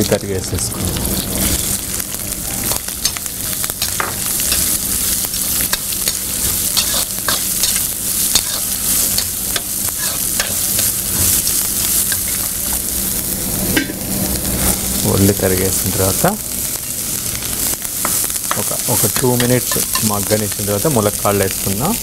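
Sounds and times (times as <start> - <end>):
onions sizzling in hot oil: 0.0 - 22.0
metal spoon scraping pan: 5.7 - 10.9.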